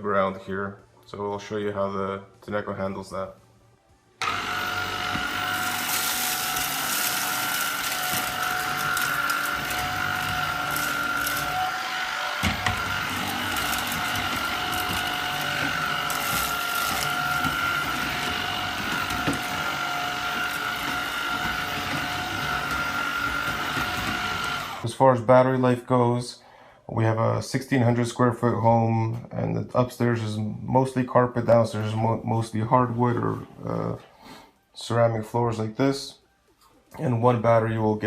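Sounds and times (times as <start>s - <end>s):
vacuum cleaner motor whine: 4.2s - 24.8s.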